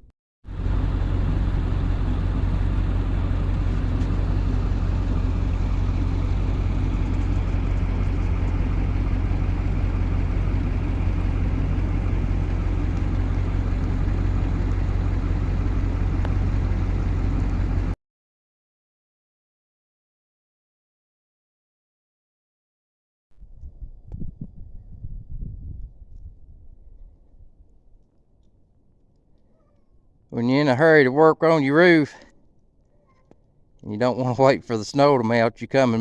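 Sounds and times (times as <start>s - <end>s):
engine humming steadily: 0.5s - 18.0s.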